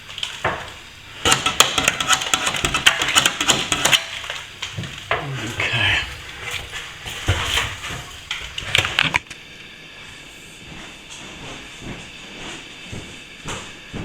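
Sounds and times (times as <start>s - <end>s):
plastering tool scraping wall: 0.0s - 9.3s
steady hiss: 0.0s - 13.9s.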